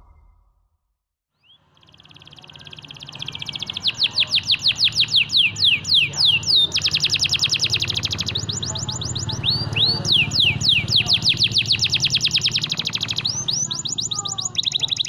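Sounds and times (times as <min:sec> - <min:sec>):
canary singing: 0:01.4 - 0:15.0.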